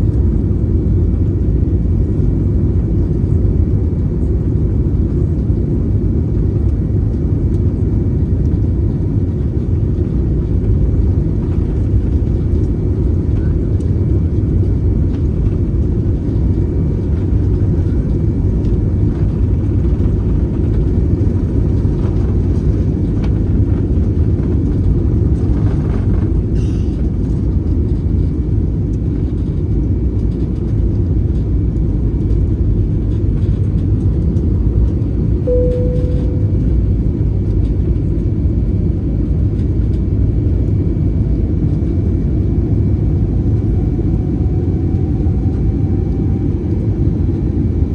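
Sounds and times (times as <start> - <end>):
jet engines rumbling: 0.0 - 47.9
single tone: 35.4 - 37.0.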